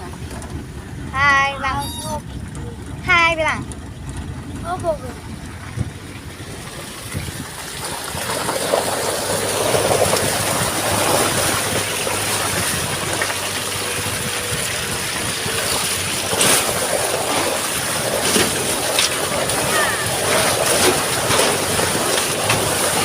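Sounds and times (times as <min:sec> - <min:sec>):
tyres on wet road: 0:00.0 - 0:23.0
rain: 0:06.2 - 0:23.0.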